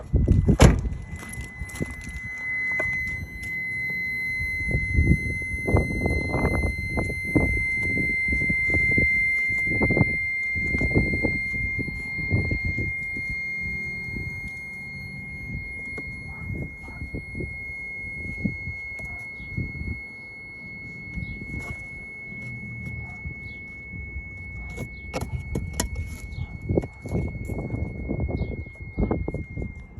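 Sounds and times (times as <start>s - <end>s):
low thumps and rumble: 0.0s - 20.0s
high-pitched brake buzz: 0.6s - 29.9s.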